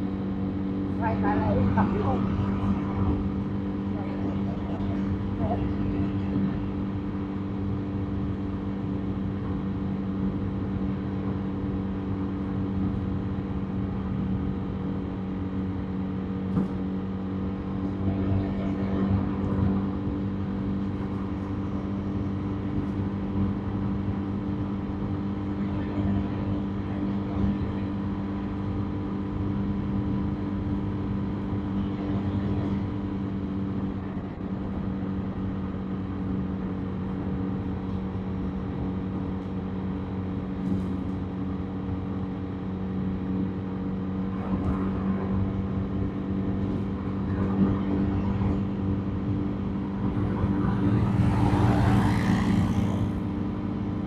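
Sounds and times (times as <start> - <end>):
road noise: 0.0 - 54.0.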